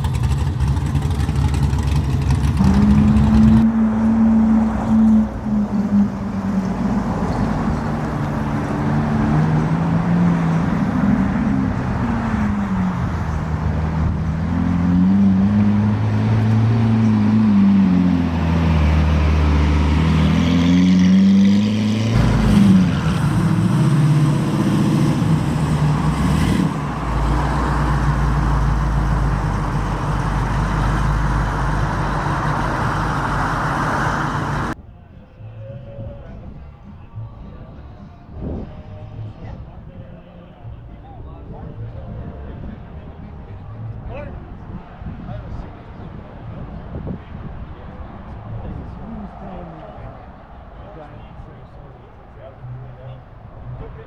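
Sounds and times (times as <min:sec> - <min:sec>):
low rumble: 0:00.0 - 0:20.3
car engines revving: 0:00.0 - 0:34.8, 0:42.6 - 0:54.0.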